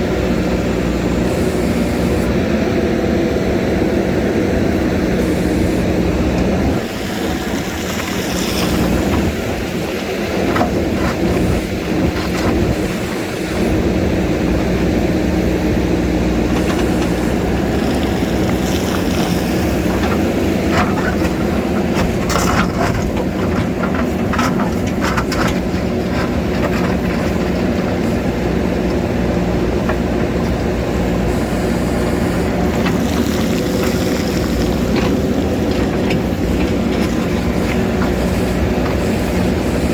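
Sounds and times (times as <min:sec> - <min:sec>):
diesel engine running under load: 0:00.0 - 0:39.9
bucket scraping and knocking on rock: 0:06.8 - 0:13.1, 0:16.5 - 0:27.9, 0:32.8 - 0:39.9.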